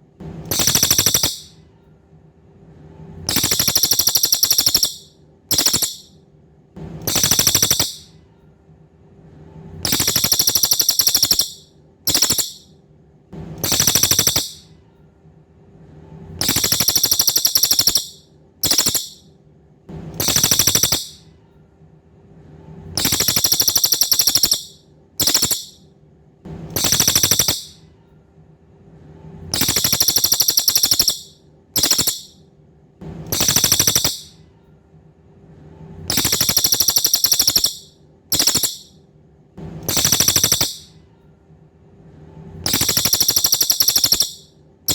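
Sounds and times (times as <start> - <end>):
faint steady hum: 0.0 - 44.9
songbird trilling: 0.5 - 1.5, 3.3 - 6.1, 7.1 - 8.0, 9.9 - 12.6, 13.7 - 14.6, 16.4 - 19.2, 20.3 - 21.2, 23.0 - 25.8, 26.8 - 27.7, 29.6 - 32.3, 33.4 - 34.3, 36.1 - 38.9, 40.0 - 40.9, 42.7 - 44.4.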